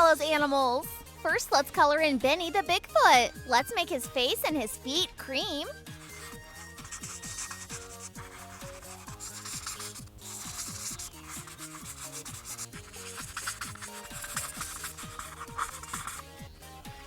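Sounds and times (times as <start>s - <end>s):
marker scratching on paper: 5.8s - 16.3s.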